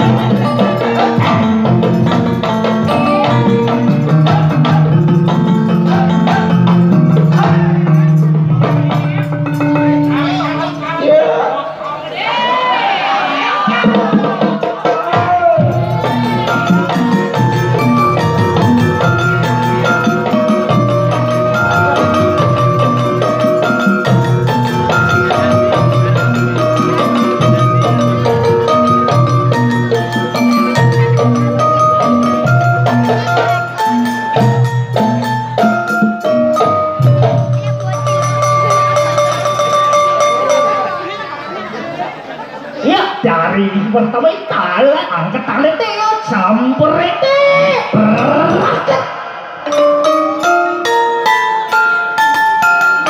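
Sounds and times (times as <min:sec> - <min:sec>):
metallophone melody: 0:00.0 - 0:11.9, 0:15.1 - 0:42.8, 0:48.0 - 0:53.0
gamelan dance music: 0:00.0 - 0:43.6, 0:47.5 - 0:53.0
drums with low beat: 0:13.7 - 0:40.4.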